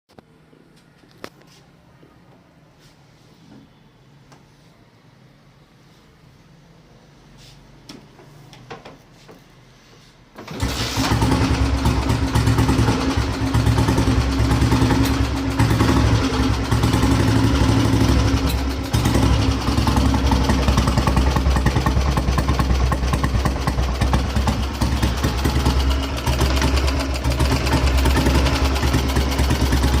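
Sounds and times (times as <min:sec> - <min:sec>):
motorcycle engine starting and idling: 0:10.3 - 0:30.0.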